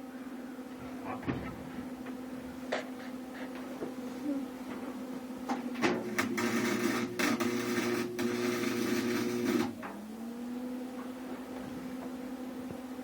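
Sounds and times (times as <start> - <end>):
welding arc crackling and buzzing: 5.9 - 10.0.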